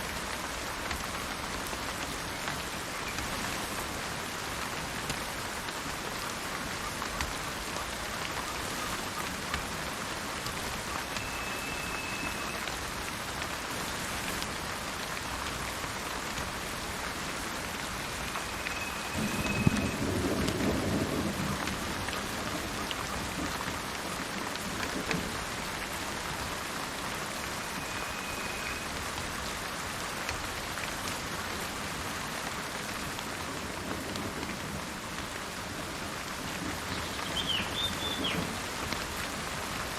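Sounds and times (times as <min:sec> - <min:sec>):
steady rain in forest: 0:00.0 - 0:39.9
high whistled bird notes: 0:11.2 - 0:12.6, 0:37.2 - 0:38.4
low roll of thunder: 0:19.0 - 0:22.7.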